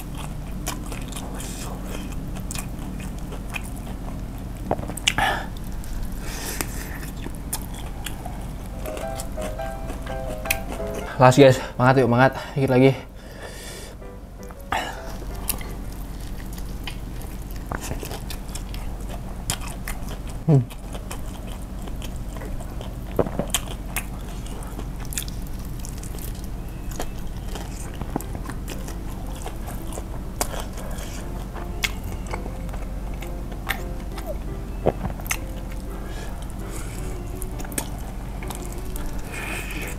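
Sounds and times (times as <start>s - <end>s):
chewing: 0.0s - 11.2s, 14.5s - 39.9s
crunching fried chicken: 0.0s - 11.3s, 15.3s - 39.9s.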